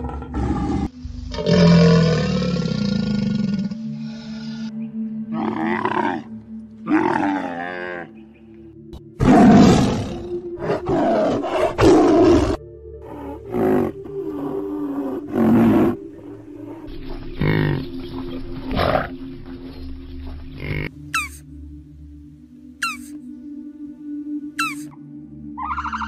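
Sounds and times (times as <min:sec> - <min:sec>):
quiet background music: 0:00.0 - 0:26.0
rhinoceros calls: 0:20.6 - 0:21.4, 0:22.8 - 0:23.2, 0:24.6 - 0:24.9, 0:25.6 - 0:26.0.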